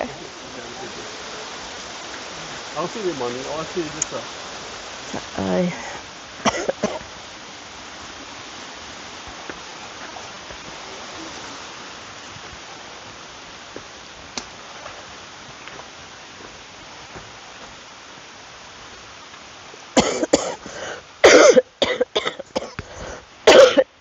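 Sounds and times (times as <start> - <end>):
rushing water: 0.0 - 24.0.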